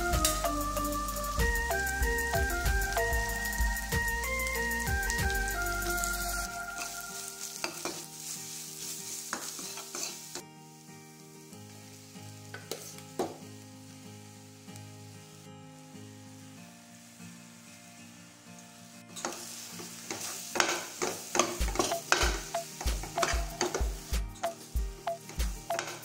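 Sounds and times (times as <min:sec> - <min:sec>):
onions sizzling in a pan: 0:00.0 - 0:26.0
metal spoon scraping a pan: 0:07.6 - 0:10.4, 0:19.2 - 0:26.0
spoon clinking on steel: 0:21.8 - 0:23.8, 0:24.4 - 0:26.0.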